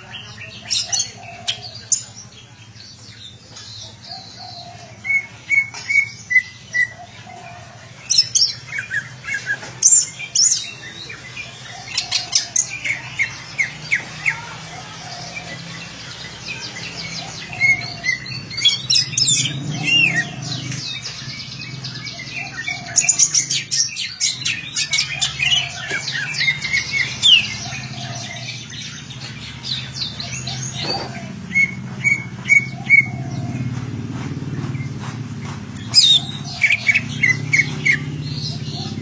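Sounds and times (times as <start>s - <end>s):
bird chirping and whistling: 17.1s - 33.7s, 35.8s - 39.0s.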